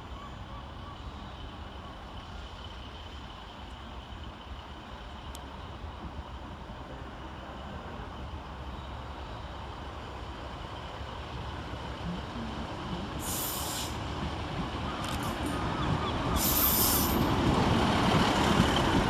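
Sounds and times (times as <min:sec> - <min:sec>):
diesel train rumble: 0:00.0 - 0:19.0
air hiss: 0:13.2 - 0:14.0, 0:16.4 - 0:17.3.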